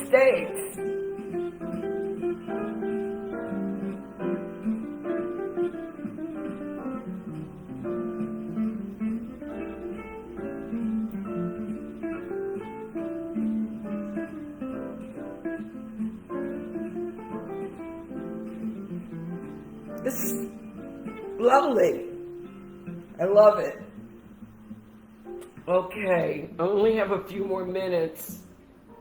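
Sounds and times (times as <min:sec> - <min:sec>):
acoustic guitar melody: 0:00.0 - 0:29.0.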